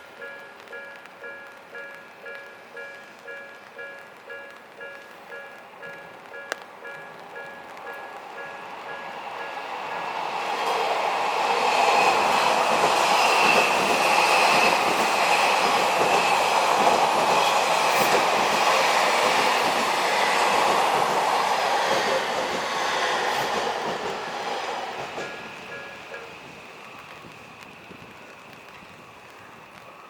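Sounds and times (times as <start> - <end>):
crossing warning bell: 0.0 - 10.4, 25.1 - 26.6
train wheels rumbling and clattering: 0.0 - 30.0.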